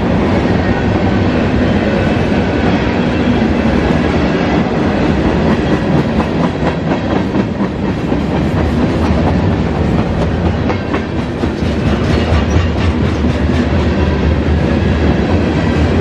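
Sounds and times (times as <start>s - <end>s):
freight train cars rumbling: 0.0s - 16.0s
wheels clicking over rail joints: 4.6s - 16.0s.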